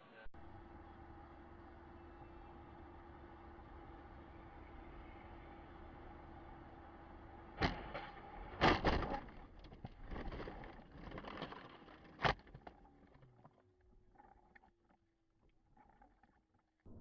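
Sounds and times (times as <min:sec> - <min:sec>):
vehicle noise: 0:00.4 - 0:13.4
vehicle collision impacts: 0:07.2 - 0:11.4.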